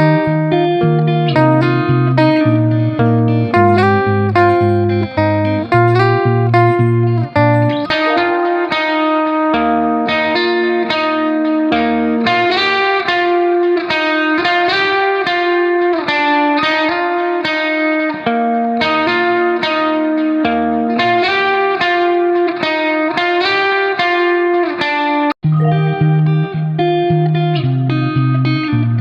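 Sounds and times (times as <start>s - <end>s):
bass line: 0.0s - 8.4s, 25.4s - 27.1s
guitar picking single notes: 0.0s - 24.7s, 25.4s - 29.0s.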